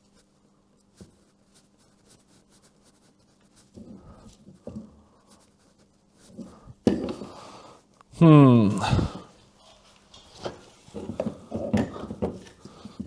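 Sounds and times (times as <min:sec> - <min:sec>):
heavy breathing: 0:03.8 - 0:05.5, 0:06.4 - 0:07.9, 0:08.7 - 0:09.4, 0:11.9 - 0:13.0.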